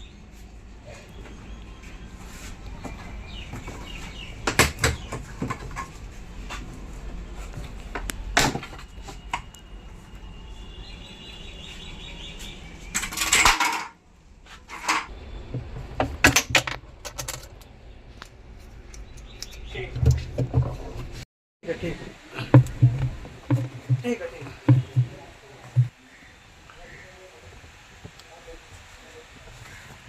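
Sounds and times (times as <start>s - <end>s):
metal tools clinking and knocking: 13.0s - 14.0s.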